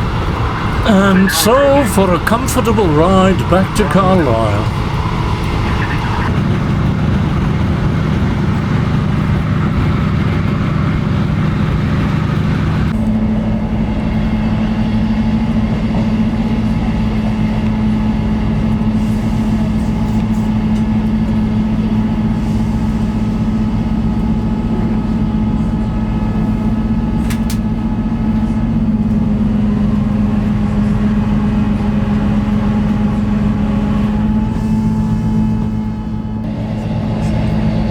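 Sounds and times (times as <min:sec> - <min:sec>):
diesel train engine drone: 0:00.0 - 0:37.9
train rolling noise: 0:00.0 - 0:37.9.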